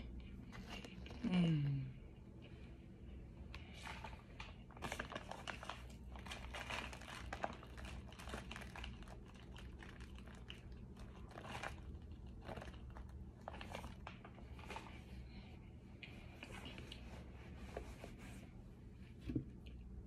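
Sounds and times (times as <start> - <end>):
person chewing crunchy food: 4.6 - 15.0.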